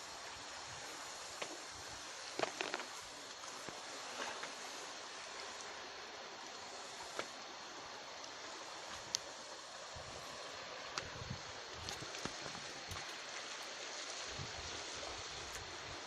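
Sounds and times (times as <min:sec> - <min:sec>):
sea water washing against shore: 0:00.0 - 0:16.0.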